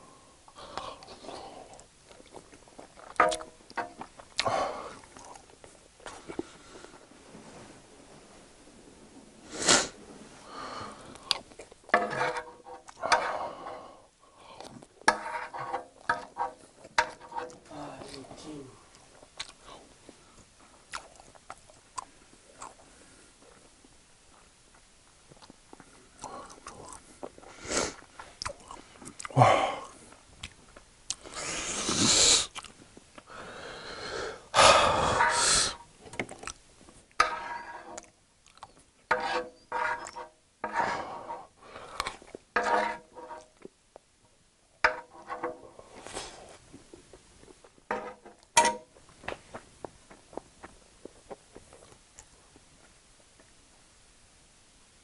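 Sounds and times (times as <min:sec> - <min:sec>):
person chewing: 0:00.7 - 0:06.5, 0:11.1 - 0:11.9, 0:12.8 - 0:13.4, 0:18.9 - 0:19.8, 0:20.9 - 0:22.9, 0:25.3 - 0:33.2, 0:35.0 - 0:37.2, 0:38.0 - 0:38.8, 0:50.3 - 0:52.3
wooden spoon scraping griddle: 0:11.9 - 0:13.9, 0:15.0 - 0:18.5, 0:35.1 - 0:35.8, 0:37.2 - 0:38.1, 0:39.0 - 0:43.6, 0:44.8 - 0:46.6, 0:47.9 - 0:48.9.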